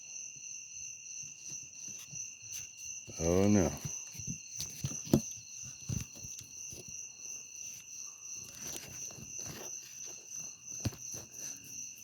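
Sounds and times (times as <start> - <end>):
insects chirping: 0.0 - 12.0
knocks and rustles: 3.5 - 11.7.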